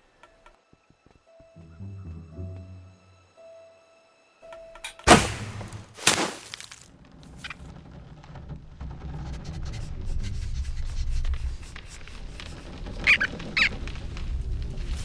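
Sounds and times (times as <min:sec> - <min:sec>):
loud crashing impacts: 0:05.1 - 0:06.9.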